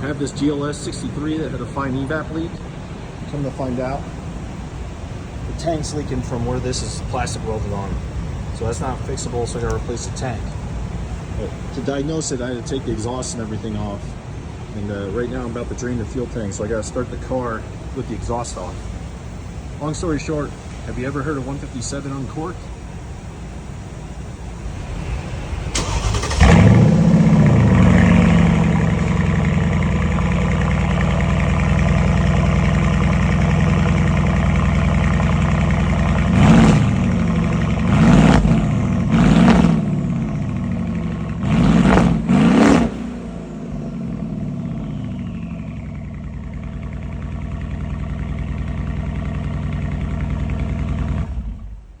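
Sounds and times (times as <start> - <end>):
car engine revving and idling: 0.0 - 52.0.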